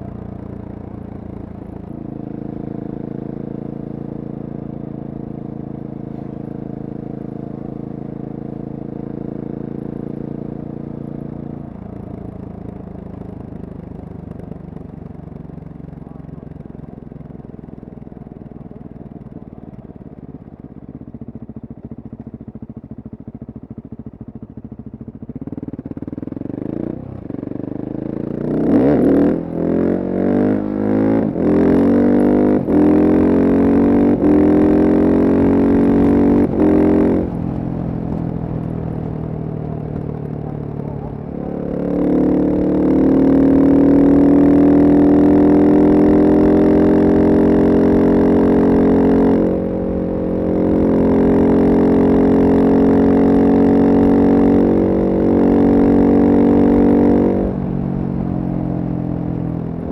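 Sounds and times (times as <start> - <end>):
motorcycle engine upshifting: 32.5 - 44.8.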